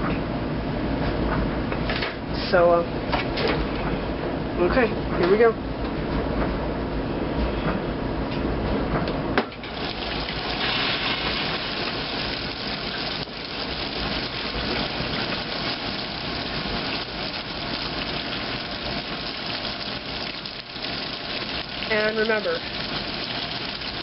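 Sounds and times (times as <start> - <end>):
washing machine low hum: 0.0 - 24.0
water rushing into tub: 9.6 - 24.0.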